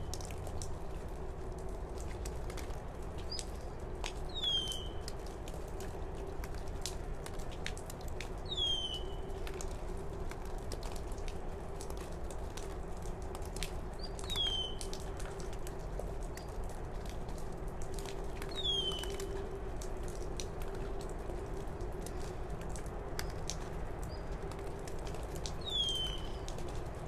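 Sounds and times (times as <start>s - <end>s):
bird whistling call: 4.3s - 5.0s, 8.5s - 9.2s, 14.3s - 14.8s, 18.6s - 19.1s, 25.6s - 26.4s.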